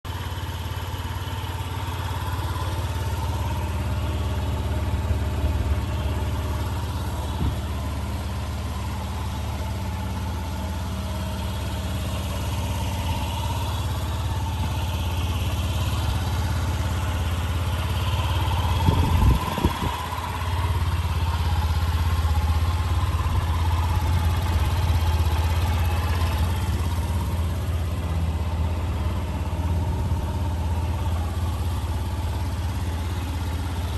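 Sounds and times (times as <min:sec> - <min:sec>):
scooter engine idling: 0:00.0 - 0:33.9
low thumps: 0:07.3 - 0:07.9.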